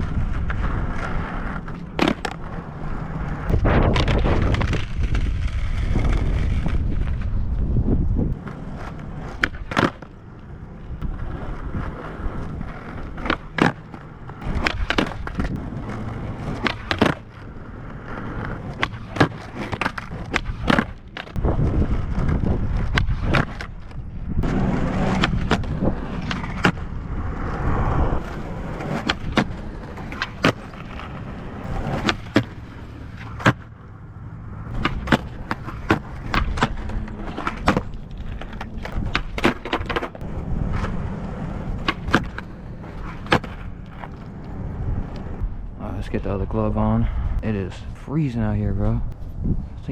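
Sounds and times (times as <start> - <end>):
skateboard wheels rolling on pavement: 0.0 - 49.9
skateboard tail pops and clacks: 0.4 - 7.3, 8.3 - 11.2, 11.8 - 17.5, 18.3 - 21.5, 22.2 - 26.9, 28.2 - 33.8, 34.7 - 45.4.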